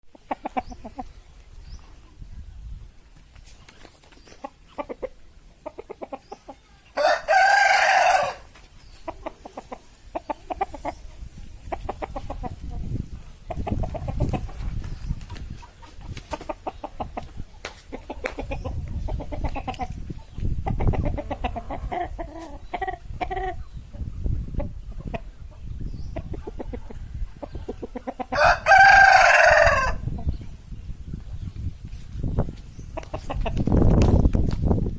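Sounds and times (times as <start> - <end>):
chicken clucking: 0.1 - 2.7, 3.4 - 30.5, 32.3 - 34.0
rooster crowing: 7.0 - 8.5, 28.4 - 30.0.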